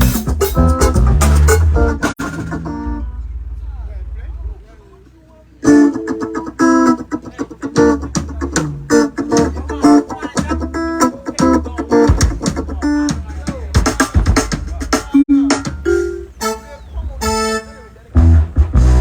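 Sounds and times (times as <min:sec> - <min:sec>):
guitar chord hits: 0:00.0 - 0:03.7, 0:15.5 - 0:19.0
low bass line: 0:00.0 - 0:05.0, 0:15.8 - 0:19.0.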